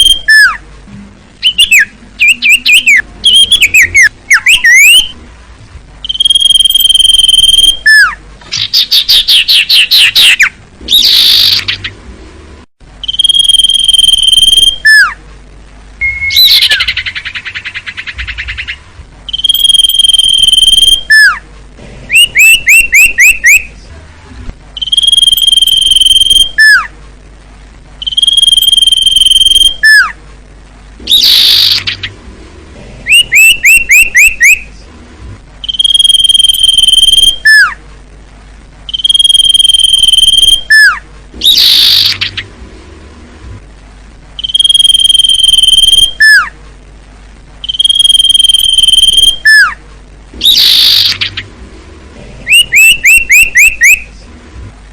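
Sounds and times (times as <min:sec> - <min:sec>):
bird whistle calls: 0:00.0 - 0:00.6, 0:01.4 - 0:05.2, 0:06.0 - 0:11.9, 0:13.0 - 0:15.2, 0:16.0 - 0:21.4, 0:22.1 - 0:23.7, 0:24.8 - 0:26.9, 0:28.0 - 0:30.2, 0:31.1 - 0:32.1, 0:33.1 - 0:34.7, 0:35.6 - 0:37.8, 0:38.9 - 0:42.4, 0:44.4 - 0:46.6, 0:47.6 - 0:49.8, 0:50.4 - 0:51.4, 0:52.5 - 0:54.1
bird chattering trills: 0:01.4 - 0:05.2, 0:06.0 - 0:12.0, 0:16.0 - 0:21.4, 0:24.8 - 0:26.9, 0:28.0 - 0:30.2, 0:31.1 - 0:32.2, 0:33.1 - 0:34.8, 0:35.6 - 0:37.8, 0:38.9 - 0:42.5, 0:47.6 - 0:49.8, 0:50.4 - 0:51.5, 0:52.5 - 0:54.1.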